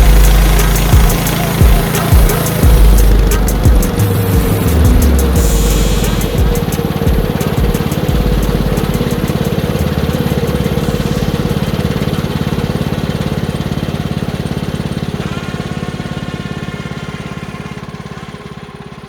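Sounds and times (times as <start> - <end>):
high steady whine: 0.0 - 14.6
small engine running: 0.0 - 19.0.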